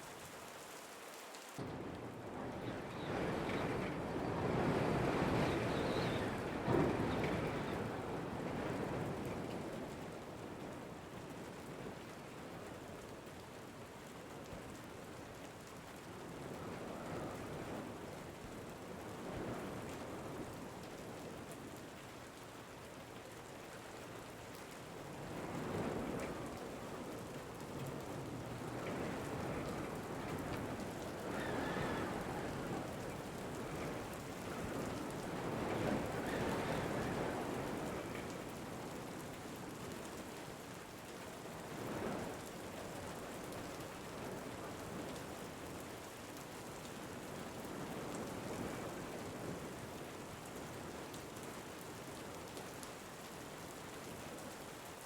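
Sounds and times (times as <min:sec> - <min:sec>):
steady rain: 0:00.0 - 0:55.0
wind gusts: 0:01.6 - 0:13.0, 0:16.0 - 0:21.9, 0:24.9 - 0:40.6, 0:41.4 - 0:45.8.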